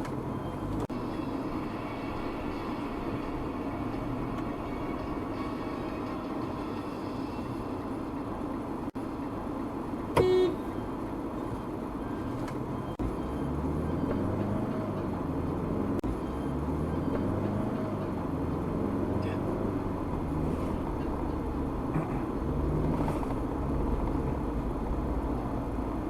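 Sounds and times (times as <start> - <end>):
car road and engine noise: 0.0 - 26.0
car horn beep: 10.1 - 10.8.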